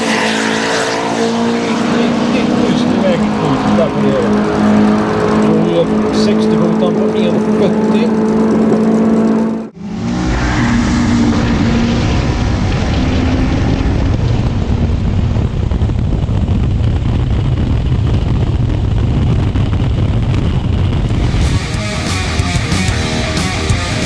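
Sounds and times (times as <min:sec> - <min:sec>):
car engine at high revs: 0:00.0 - 0:24.0
wind noise: 0:08.2 - 0:24.0.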